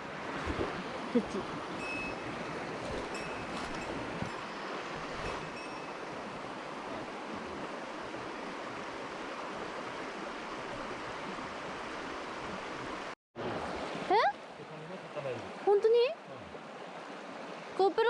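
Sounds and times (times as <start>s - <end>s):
stream rushing water: 0.0s - 18.0s.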